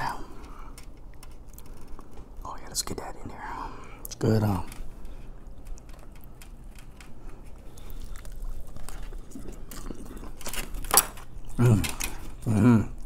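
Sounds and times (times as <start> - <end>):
person chewing food: 0.3 - 2.4, 4.9 - 13.0.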